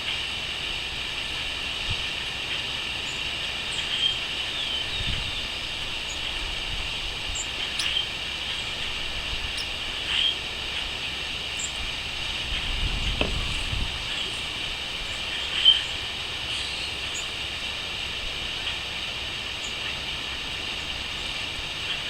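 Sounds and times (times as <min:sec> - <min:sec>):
crickets chirping: 0:00.0 - 0:22.0
bird chirps: 0:07.3 - 0:08.9, 0:14.0 - 0:17.4.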